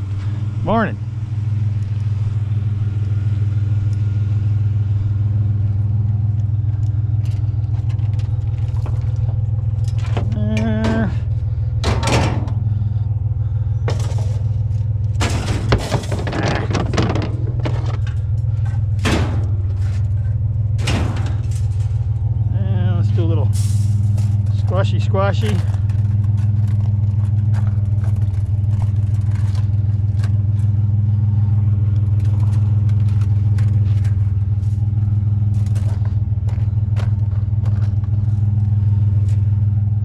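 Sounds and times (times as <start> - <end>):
vehicle engine idling: 0.0 - 40.0
scrap metal knocking and rattling: 6.6 - 39.5.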